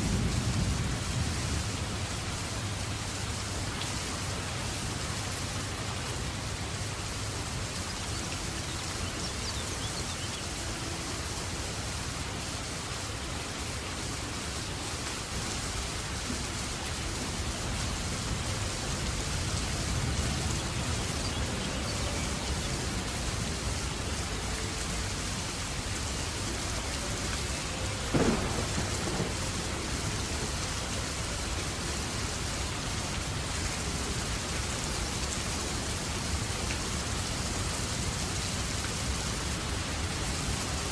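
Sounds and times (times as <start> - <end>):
thunder rumbling: 0.0 - 3.0, 27.4 - 31.8
steady rain falling: 0.0 - 40.9.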